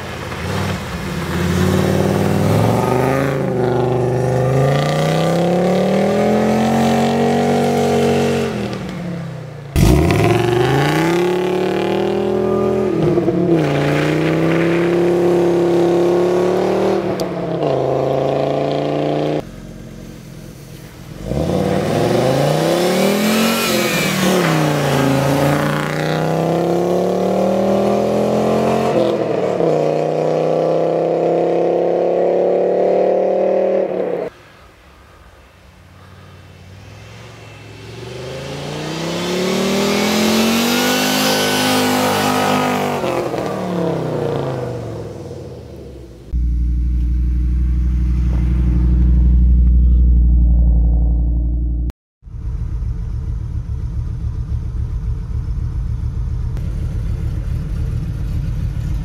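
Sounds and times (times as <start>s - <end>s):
car engine revving hard: 0.5s - 8.8s, 9.7s - 19.4s, 21.1s - 34.3s, 36.8s - 51.7s.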